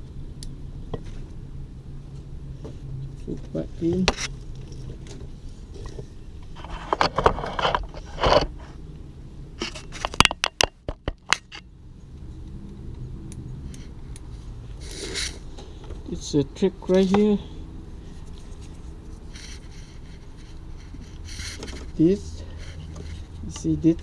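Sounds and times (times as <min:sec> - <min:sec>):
hose scraping: 0:14.8 - 0:15.4.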